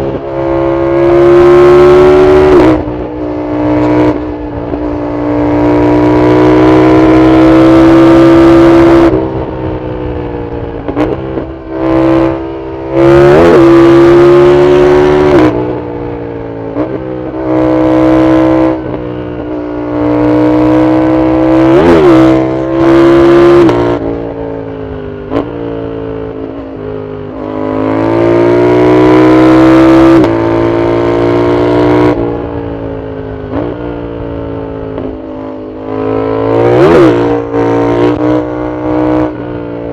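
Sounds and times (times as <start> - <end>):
motorcycle engine revving hard: 0.0 - 4.4, 5.1 - 9.4, 10.9 - 15.7, 16.7 - 19.2, 19.8 - 24.2, 27.4 - 32.2, 35.0 - 39.6.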